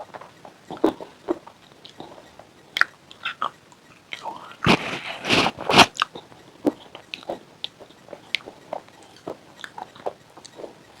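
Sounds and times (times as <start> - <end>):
chewing clicks: 5.9 - 10.9.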